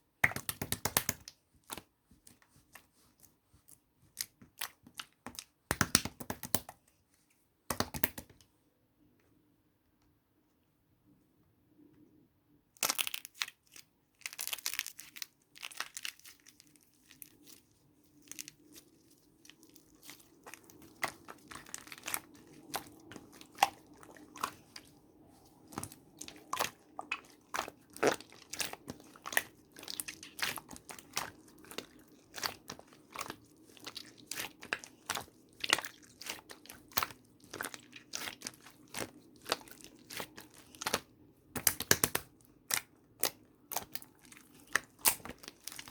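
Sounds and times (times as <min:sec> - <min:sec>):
dried clay cracking and crunching: 0:12.8 - 0:45.9.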